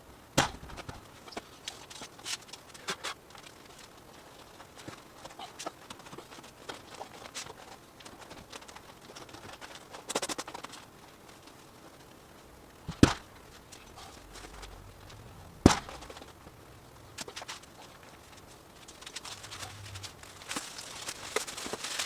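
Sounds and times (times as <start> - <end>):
sharp knocks: 12.9 - 16.4.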